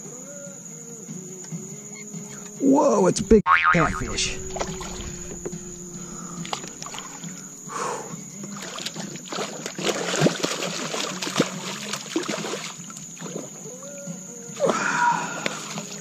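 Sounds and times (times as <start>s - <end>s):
fish thrashing and splashing: 4.3s - 5.5s, 6.1s - 7.4s, 8.4s - 13.6s.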